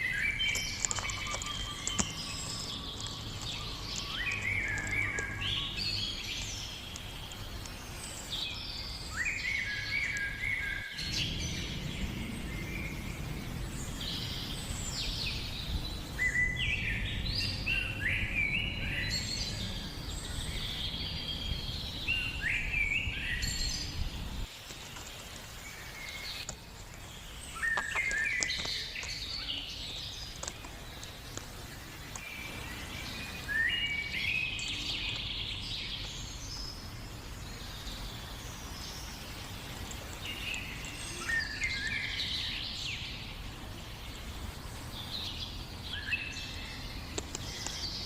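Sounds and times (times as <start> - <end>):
birds chirping: 0.0 - 48.0
low rumbling noise: 10.9 - 23.2.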